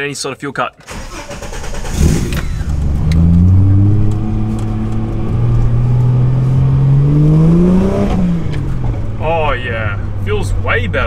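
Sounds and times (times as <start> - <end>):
car engine revving from inside cabin: 1.9 - 9.1.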